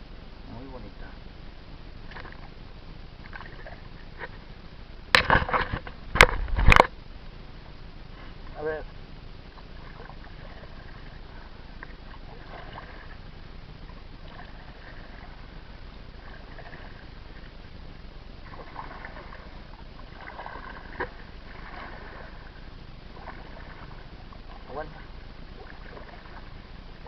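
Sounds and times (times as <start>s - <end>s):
water splashing around a kayak: 2.0s - 4.5s, 8.1s - 27.0s.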